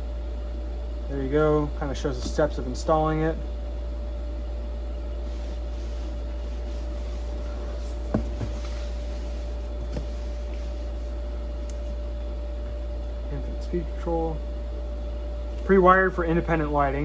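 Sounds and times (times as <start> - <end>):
steady low hum: 0.0 - 17.0
cardboard box being handled: 5.2 - 12.3.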